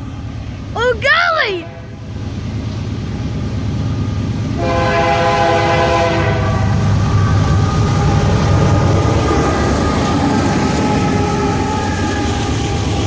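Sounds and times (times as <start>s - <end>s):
passing train rumble: 0.0s - 13.0s
train horn chord: 4.6s - 8.1s.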